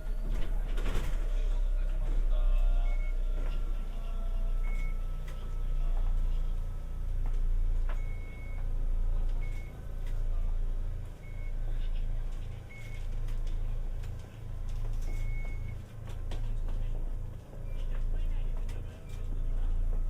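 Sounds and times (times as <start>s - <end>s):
tram low hum: 0.0s - 20.0s.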